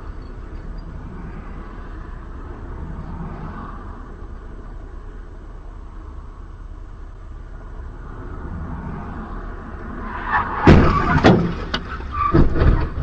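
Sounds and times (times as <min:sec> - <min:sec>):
low vehicle rumble: 0:00.0 - 0:13.0
vehicle collision crashing bangs: 0:10.2 - 0:13.0.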